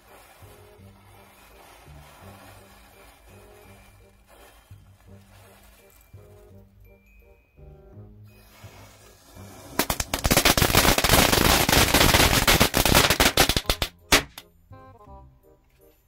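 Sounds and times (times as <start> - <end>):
firecracker string cracking: 8.5 - 14.5
loud firecracker bangs: 9.7 - 14.4.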